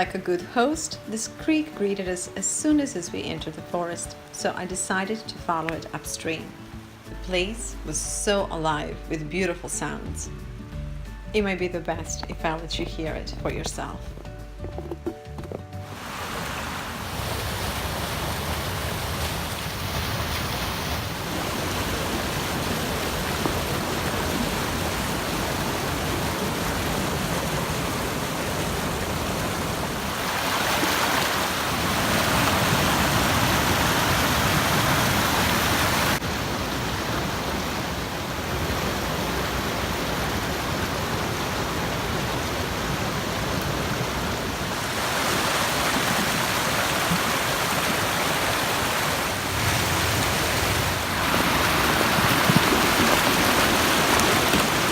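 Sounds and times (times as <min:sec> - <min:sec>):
creek water rushing: 0:15.7 - 0:54.9.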